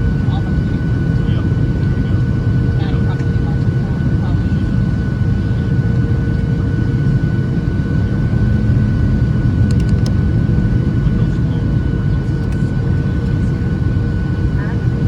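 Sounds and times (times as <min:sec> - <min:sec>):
high engine whine: 0:00.0 - 0:15.0
jet engine roar in cabin: 0:00.0 - 0:15.0
faint clicks: 0:09.6 - 0:10.2.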